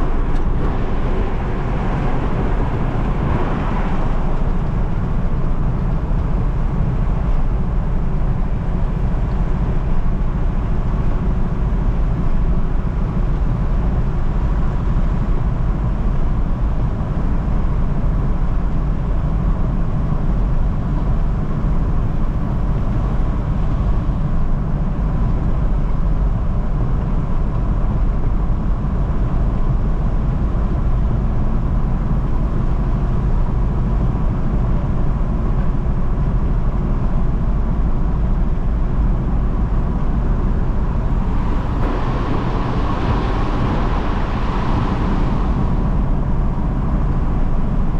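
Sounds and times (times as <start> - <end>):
vehicle engine and road rumble: 0.0 - 47.9
faint steady whine: 37.5 - 47.9.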